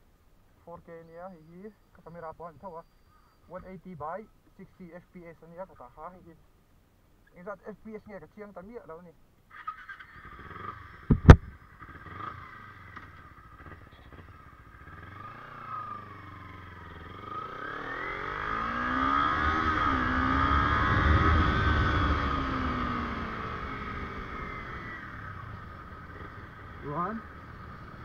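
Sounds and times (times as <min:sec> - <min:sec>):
motorcycle engine revving: 0:09.5 - 0:28.0
sharp knocks: 0:11.1 - 0:11.5.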